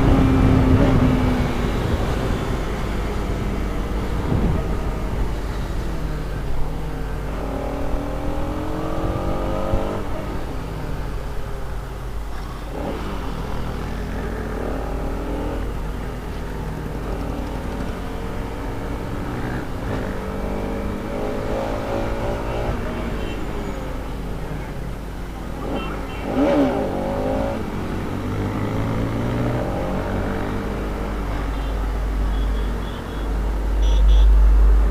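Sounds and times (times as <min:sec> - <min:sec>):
motorcycle engine revving: 0:07.2 - 0:10.4, 0:12.7 - 0:23.2, 0:25.6 - 0:31.2.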